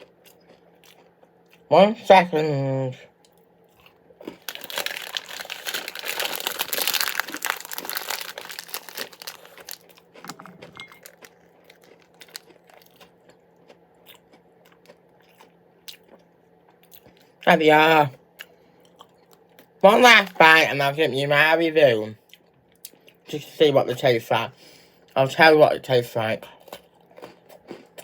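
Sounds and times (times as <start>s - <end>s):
plastic packaging crinkling: 4.2s - 13.0s.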